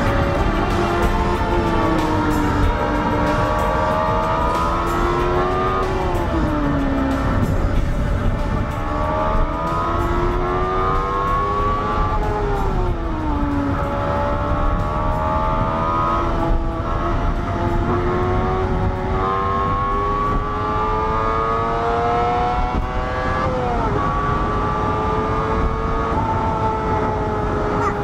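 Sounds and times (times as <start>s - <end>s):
car engine accelerating hard: 0.0s - 28.0s
road and wind noise: 0.0s - 28.0s.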